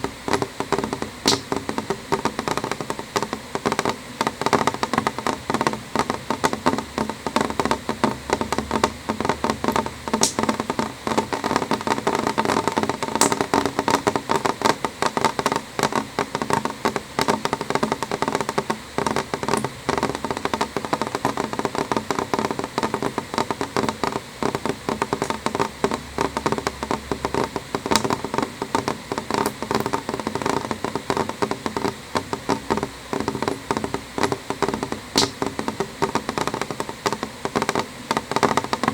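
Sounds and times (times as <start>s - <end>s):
rain tapping on window glass: 0.0s - 38.9s.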